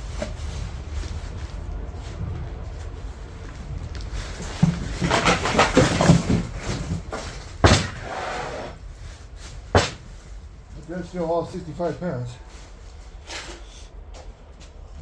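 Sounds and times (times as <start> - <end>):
hard objects clattering: 3.9 - 8.1.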